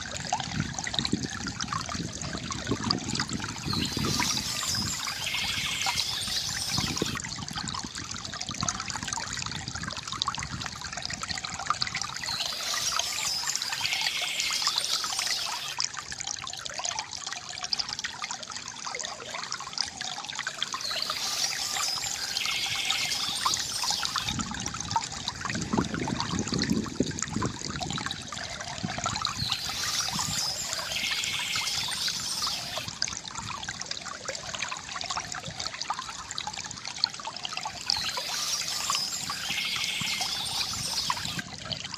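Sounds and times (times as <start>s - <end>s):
water trickling from fountain: 0.0s - 41.9s
high bird chirping: 3.6s - 7.2s, 12.2s - 15.8s, 20.8s - 24.3s, 29.4s - 32.9s, 37.8s - 41.4s.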